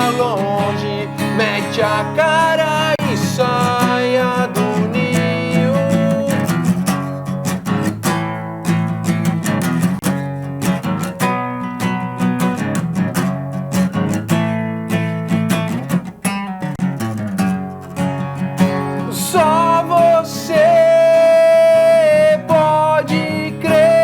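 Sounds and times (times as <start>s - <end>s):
man singing: 0.0s - 7.0s, 18.9s - 24.0s
guitar strumming: 0.0s - 24.0s.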